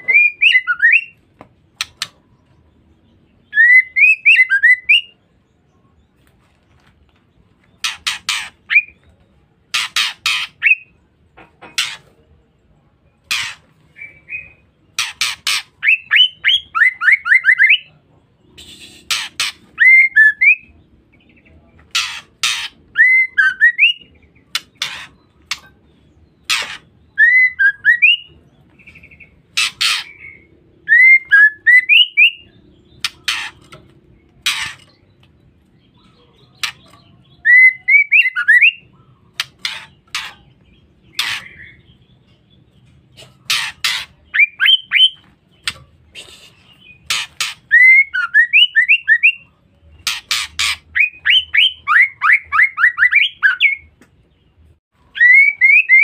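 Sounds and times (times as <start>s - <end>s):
harsh bird calls: 0.0s - 12.5s, 13.1s - 56.0s
bird whistled notes: 18.6s - 20.7s, 55.1s - 56.0s.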